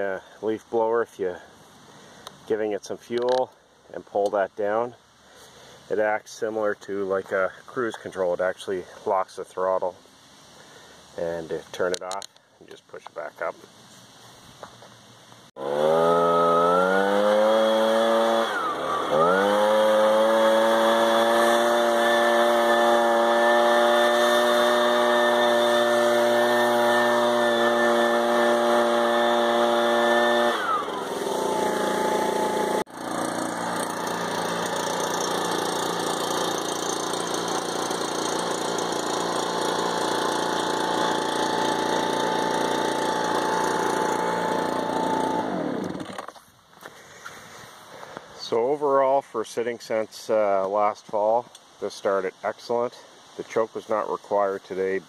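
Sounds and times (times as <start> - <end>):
leaf blower running: 15.6 - 46.4.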